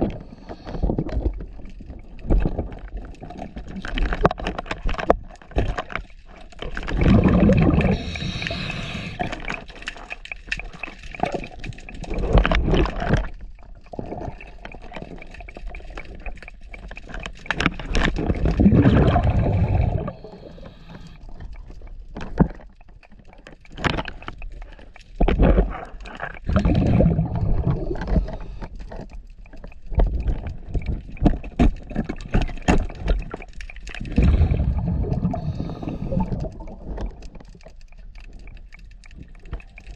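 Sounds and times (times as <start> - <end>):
exhaled bubbles gurgling: 5.0 - 39.9
diver breathing through regulator: 7.2 - 9.7, 18.7 - 21.4, 26.5 - 28.9, 34.0 - 37.1.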